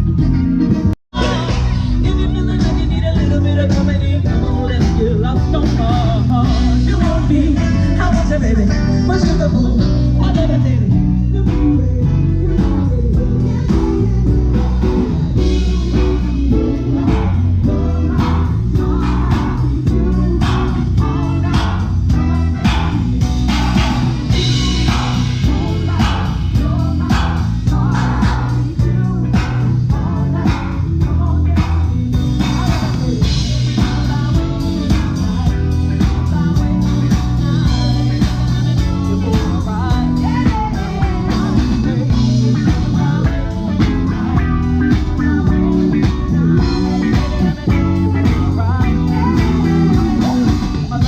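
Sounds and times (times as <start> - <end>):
electric guitar: 0.0 - 51.0
live rock band playing: 0.0 - 51.0
person singing: 1.1 - 51.0.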